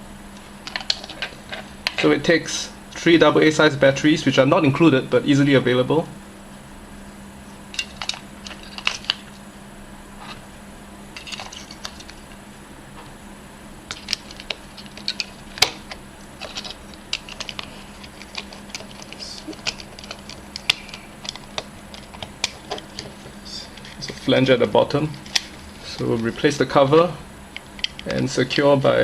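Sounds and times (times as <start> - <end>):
batteries clicking against plastic: 13.9 - 24.2.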